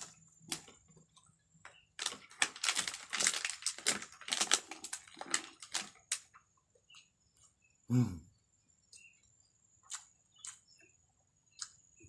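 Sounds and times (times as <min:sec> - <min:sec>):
crunchy chewing and smacking: 0:00.0 - 0:07.8, 0:08.8 - 0:12.0.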